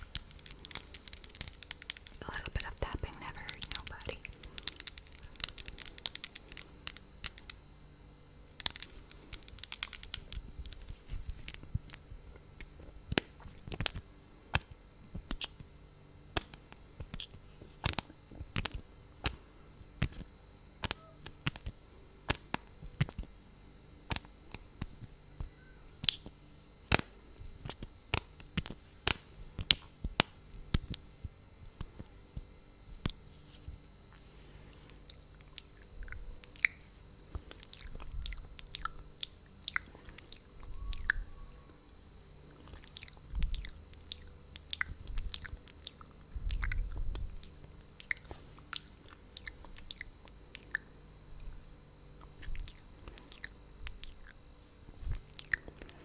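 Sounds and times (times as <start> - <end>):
wet lip smacks and pops: 8.6 - 12.0, 12.6 - 15.7, 34.9 - 36.8, 42.7 - 50.9.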